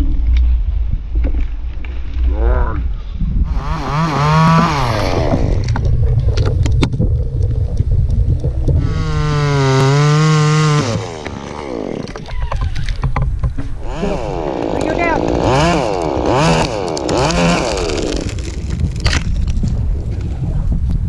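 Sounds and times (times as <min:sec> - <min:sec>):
chainsaw revving: 0:03.5 - 0:05.7, 0:08.8 - 0:12.4, 0:13.8 - 0:18.7
sharp clicks: 0:14.6 - 0:19.6.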